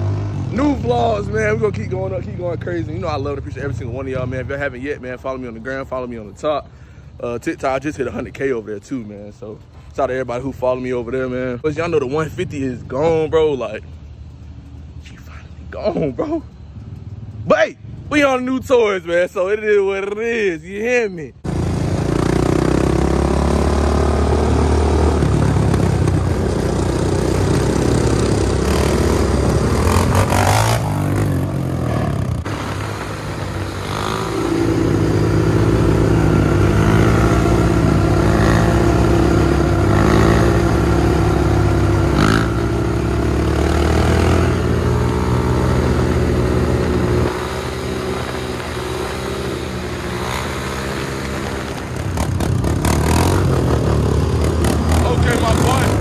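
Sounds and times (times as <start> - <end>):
dirt bike engine revving: 0.0 - 3.3, 21.4 - 56.0.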